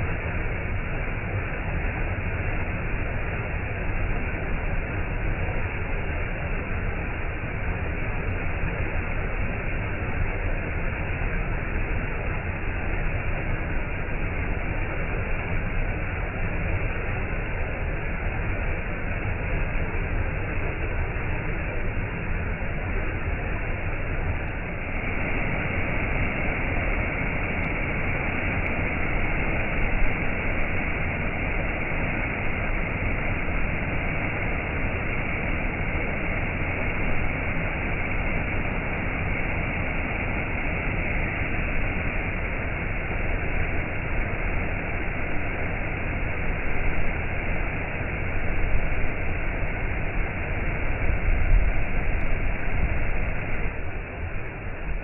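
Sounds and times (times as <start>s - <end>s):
waterfall rushing: 23.0s - 48.3s.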